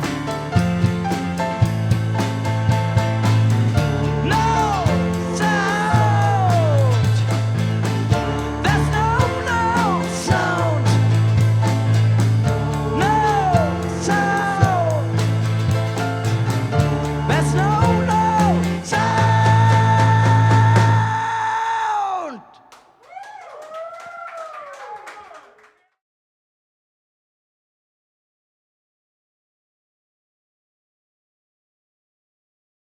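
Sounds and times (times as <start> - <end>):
rock band playing: 0.0 - 21.2.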